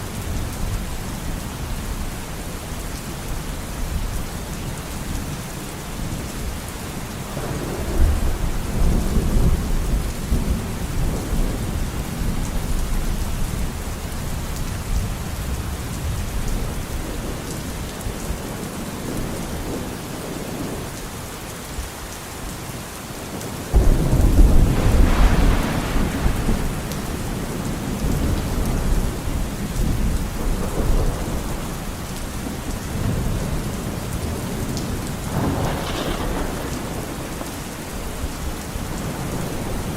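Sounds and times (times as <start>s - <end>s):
steady rain falling: 0.0s - 39.9s
rolling thunder: 7.3s - 20.9s, 23.7s - 39.9s
thunder crack: 23.7s - 31.6s, 35.3s - 39.9s.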